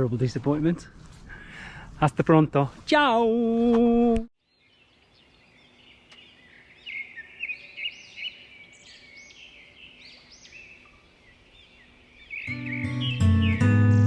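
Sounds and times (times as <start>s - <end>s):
faint outdoor hiss: 0.0s - 13.9s
songbirds chirping and whistling: 4.4s - 14.0s.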